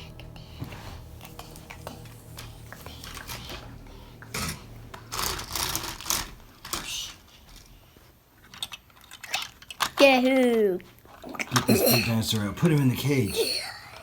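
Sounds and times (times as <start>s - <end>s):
plastic toys clicking and clattering: 4.2s - 7.8s, 8.4s - 13.2s.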